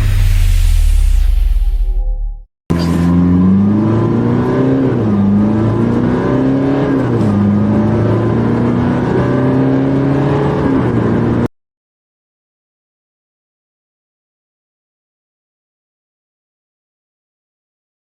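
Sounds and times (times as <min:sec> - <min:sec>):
car engine accelerating hard: 0:02.7 - 0:11.5.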